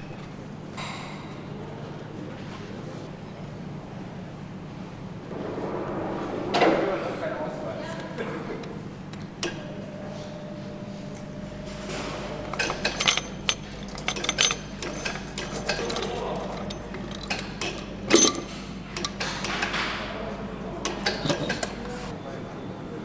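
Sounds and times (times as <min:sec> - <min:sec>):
machinery hum: 0:00.0 - 0:23.0
metallic clicks and clinks of tools: 0:12.5 - 0:19.3.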